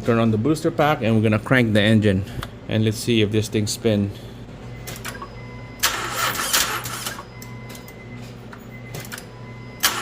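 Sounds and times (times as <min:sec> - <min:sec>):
starter motor cranking engine: 0:05.8 - 0:07.2.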